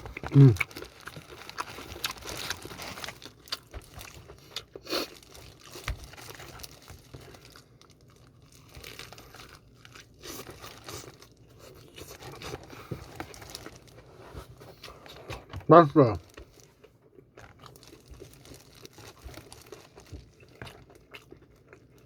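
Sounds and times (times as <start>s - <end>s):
crinkling: 0.0s - 22.0s
crunching and chewing fried chicken: 0.0s - 22.0s.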